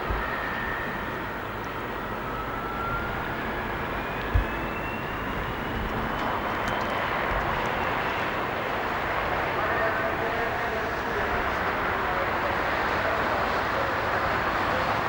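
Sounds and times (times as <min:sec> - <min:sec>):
diesel train rumbling: 0:00.0 - 0:15.0
low thump: 0:04.3 - 0:04.8.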